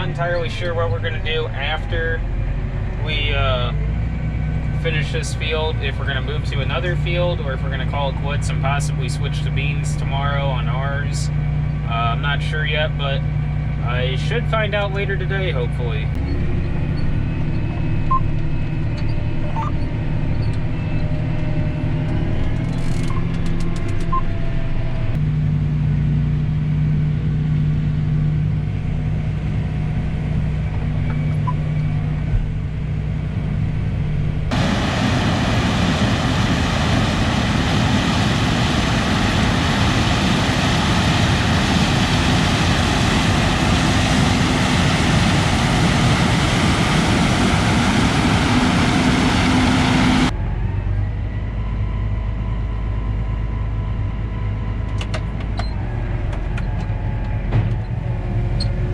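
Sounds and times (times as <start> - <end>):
combine harvester engine hum: 0.0 - 58.9
loud rushing machine noise: 34.5 - 50.3.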